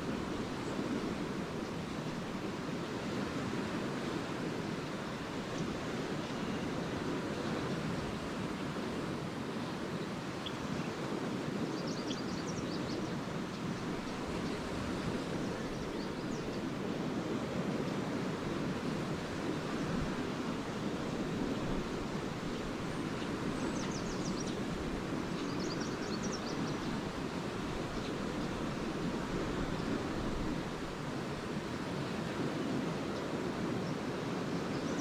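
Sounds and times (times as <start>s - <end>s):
waves washing onto sand: 0.0s - 35.0s
swallows twittering: 11.7s - 16.7s, 23.0s - 27.1s.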